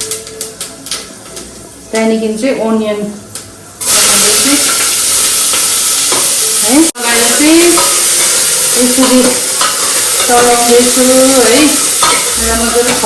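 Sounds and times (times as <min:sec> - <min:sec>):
onion sizzling in a pan: 0:03.8 - 0:13.0.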